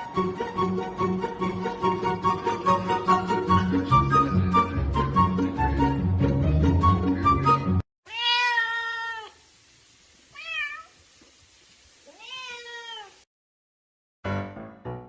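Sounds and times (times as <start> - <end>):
background music: 0.0 - 7.8
cat meowing: 8.1 - 9.4, 10.3 - 11.0, 12.1 - 13.2.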